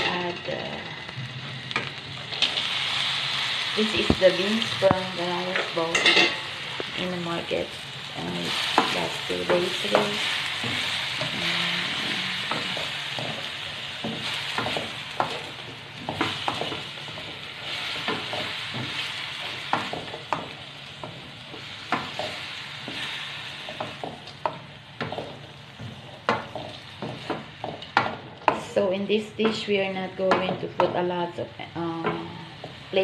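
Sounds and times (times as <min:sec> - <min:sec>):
food sizzling in a pan: 0:00.0 - 0:33.0
spatula clicking and scraping: 0:23.6 - 0:28.6.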